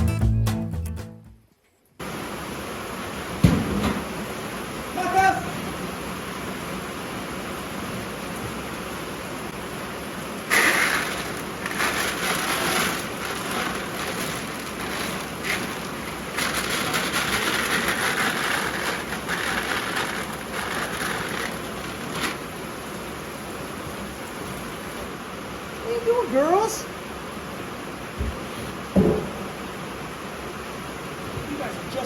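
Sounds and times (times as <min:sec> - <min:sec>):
heavy rain pouring: 0:02.0 - 0:32.0
uneven rushing and rattling noise: 0:10.5 - 0:22.6.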